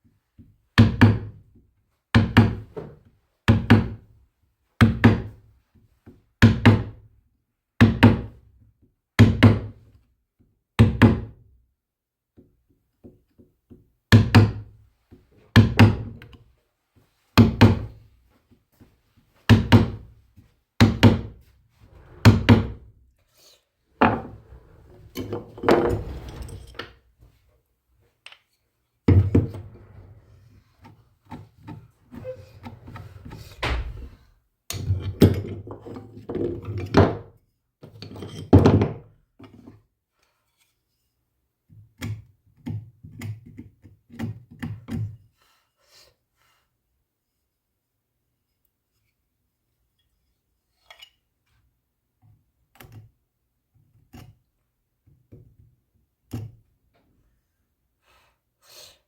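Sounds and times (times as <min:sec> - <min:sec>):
scraping and rustling: 0:24.0 - 0:27.5, 0:29.2 - 0:34.3
heavy knocks on wood: 0:33.3 - 0:34.3.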